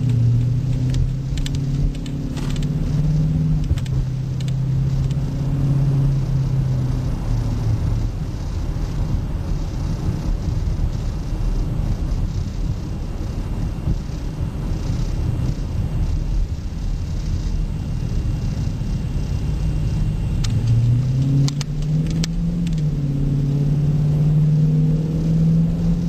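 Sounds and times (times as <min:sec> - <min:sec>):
low exhaust drone: 0:00.0 - 0:26.0
low road rumble: 0:00.0 - 0:26.0.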